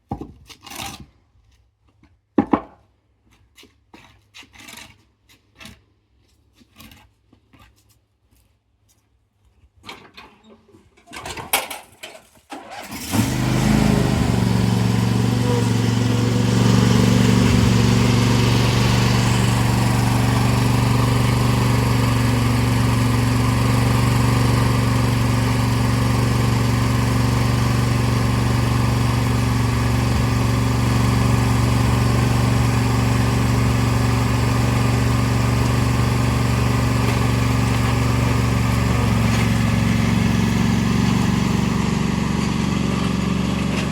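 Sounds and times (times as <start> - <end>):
lawn tractor engine running: 12.5 - 43.9.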